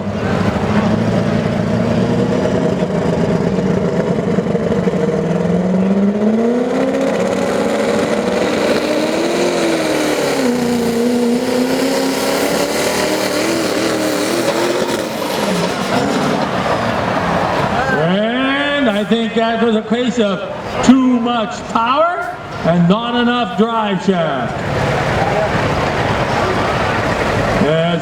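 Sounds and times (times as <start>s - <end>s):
diesel pickup engine at full throttle: 0.0s - 22.9s, 23.5s - 28.0s.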